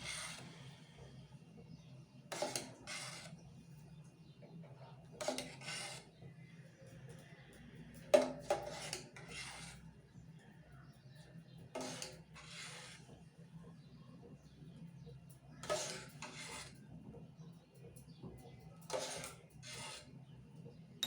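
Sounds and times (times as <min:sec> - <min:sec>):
spoon scraping a bowl: 0:00.0 - 0:00.5, 0:02.3 - 0:03.4, 0:05.2 - 0:06.2, 0:08.1 - 0:09.9, 0:11.8 - 0:13.2, 0:15.6 - 0:16.8, 0:18.9 - 0:20.2.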